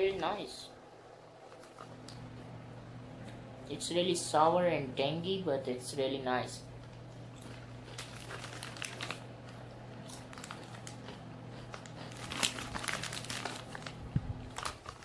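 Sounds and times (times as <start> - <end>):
steady low hum: 0.0 - 15.0
crisp packet crinkling: 7.4 - 15.0.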